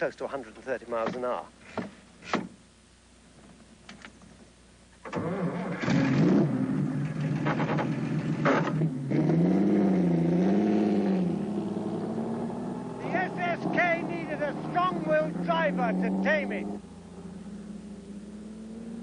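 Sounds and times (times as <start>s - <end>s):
car engine starting and revving: 5.0s - 19.0s.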